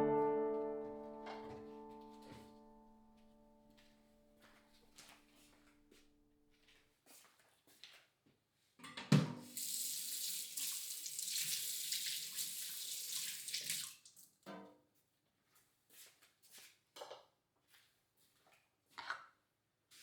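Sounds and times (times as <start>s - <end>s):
tap water running into sink: 9.4s - 14.2s.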